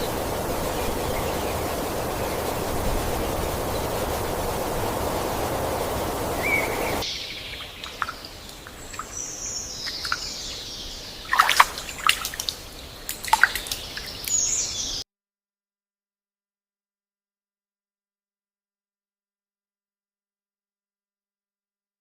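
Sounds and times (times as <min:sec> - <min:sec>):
birds chirping: 0:00.0 - 0:15.0
steady hiss: 0:00.0 - 0:15.0.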